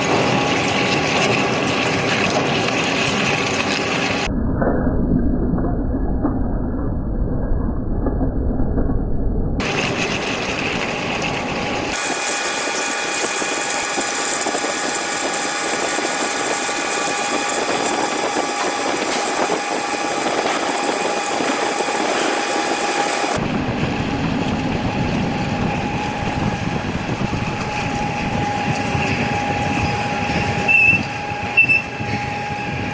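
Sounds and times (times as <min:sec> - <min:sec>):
machine drilling into metal: 0:09.6 - 0:23.4.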